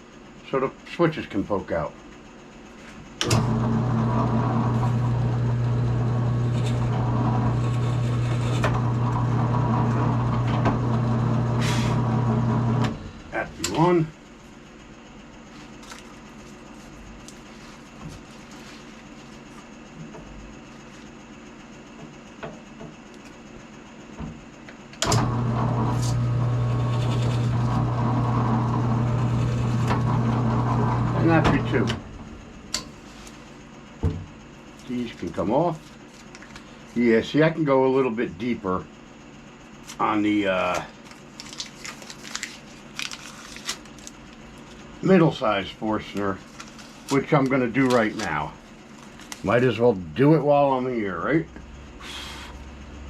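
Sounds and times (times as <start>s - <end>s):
drill press boring wood: 3.2s - 14.0s, 25.0s - 32.9s.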